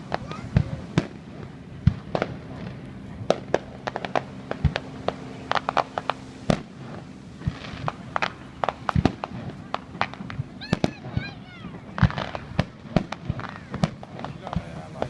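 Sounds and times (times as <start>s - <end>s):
deep firework booms: 0.0s - 15.0s
firework pops and cracks: 1.8s - 6.8s, 7.4s - 11.3s, 11.9s - 15.0s.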